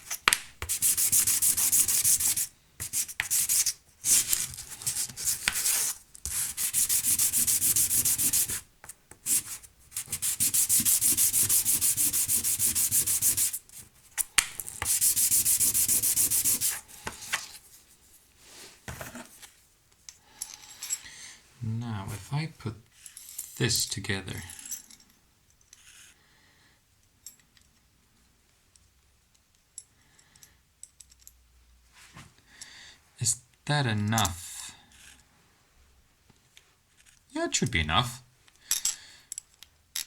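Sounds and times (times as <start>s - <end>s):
sandpaper rubbing: 0.0s - 17.6s
light handling sounds: 17.0s - 21.0s.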